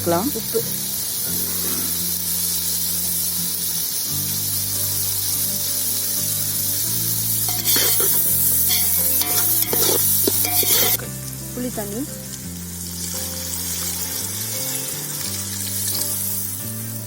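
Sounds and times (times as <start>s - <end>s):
food sizzling in a pot: 0.0s - 17.0s
spoon stirring and scraping: 7.4s - 11.0s.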